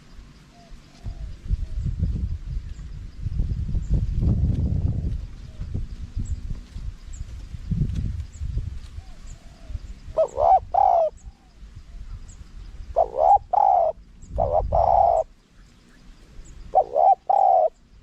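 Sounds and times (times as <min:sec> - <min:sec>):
dove cooing: 0:00.0 - 0:01.8, 0:09.0 - 0:11.5, 0:12.9 - 0:15.3, 0:16.7 - 0:17.9.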